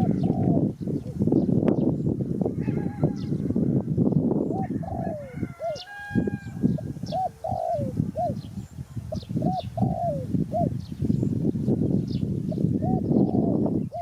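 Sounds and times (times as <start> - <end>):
dove cooing: 0.0 - 1.4, 4.4 - 10.9, 12.5 - 14.0.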